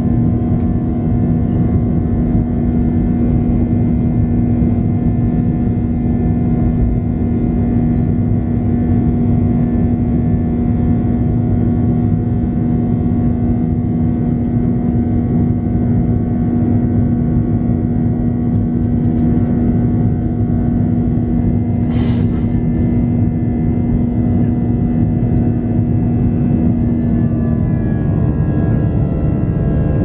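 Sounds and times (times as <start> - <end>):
aircraft cabin engine drone: 0.0 - 30.0
constant low hum: 0.0 - 30.0.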